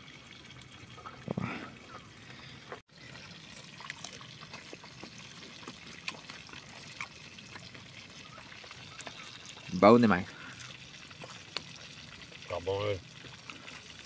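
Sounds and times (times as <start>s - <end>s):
water trickling: 0.0s - 14.0s
man chewing crispy fish: 2.3s - 9.7s, 10.4s - 12.4s, 13.1s - 14.0s.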